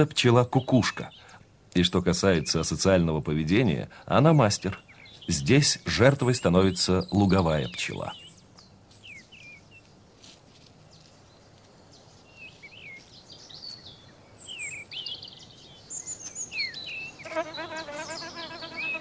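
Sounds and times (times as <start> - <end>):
small birds chirping: 0.0 - 19.0
bee buzzing in flight: 17.2 - 19.0.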